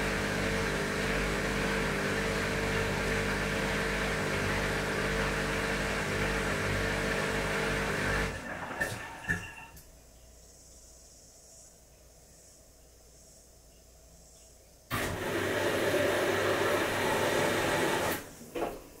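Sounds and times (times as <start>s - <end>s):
washing machine whirring: 0.0s - 9.8s, 14.9s - 19.0s.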